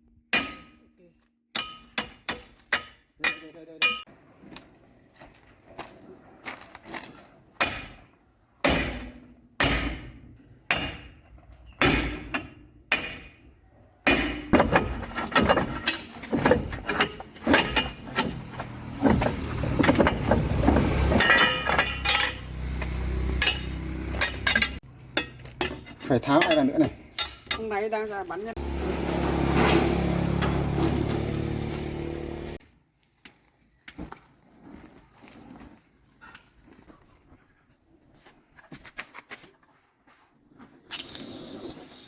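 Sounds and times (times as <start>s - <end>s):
hammer striking steel: 0.4s - 0.8s, 8.6s - 11.2s, 11.8s - 13.4s, 14.0s - 18.4s, 20.9s - 27.7s
rapid metal clatter: 14.5s - 22.4s.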